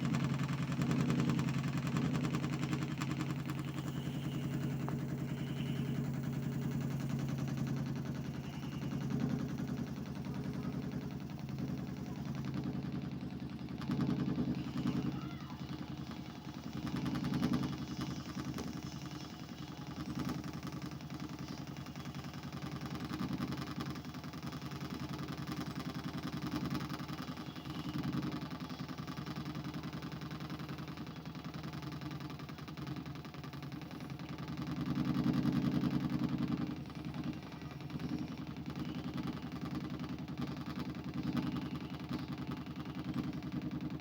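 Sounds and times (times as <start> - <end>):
low mechanical buzzing drone: 2.5 - 12.6.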